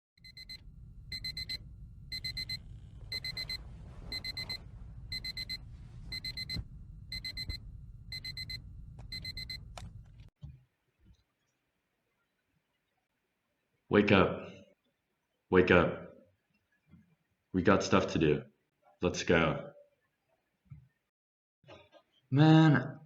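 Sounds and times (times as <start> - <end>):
alarm clock beeping: 0.2 - 9.9
low rumble: 0.3 - 10.3.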